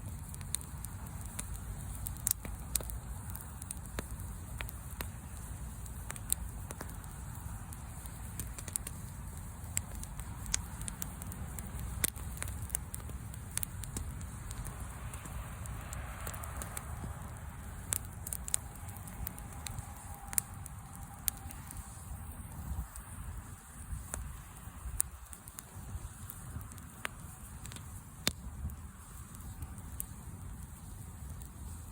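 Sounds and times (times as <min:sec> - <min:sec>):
wood fire crackling and popping: 0:00.0 - 0:31.9.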